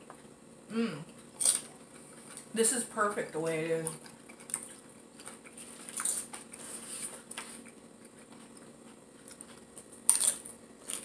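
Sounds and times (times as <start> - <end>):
quiet chewing: 1.0 - 11.0
chips crunching: 1.1 - 2.6, 3.8 - 11.0.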